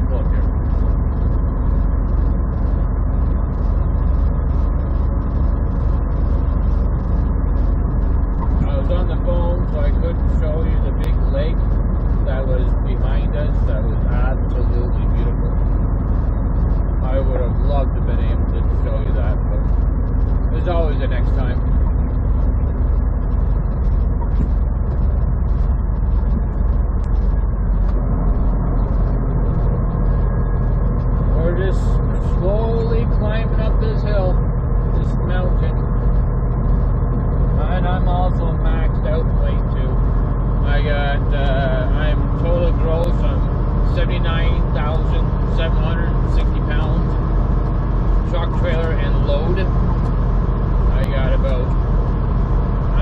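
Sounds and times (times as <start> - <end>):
truck diesel engine running: 0.0 - 53.0.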